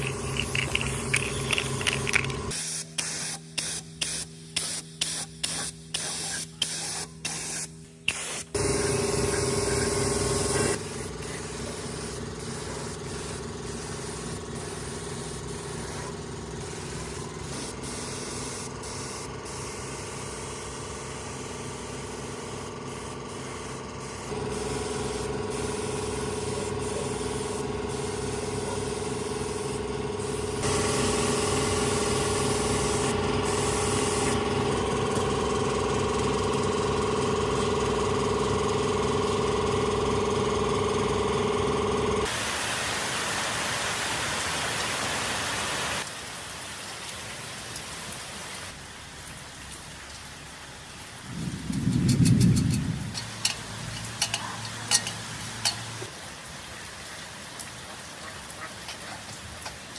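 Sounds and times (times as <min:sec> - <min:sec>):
motor running with rapid pulse: 0:00.0 - 0:02.6, 0:08.4 - 0:42.3.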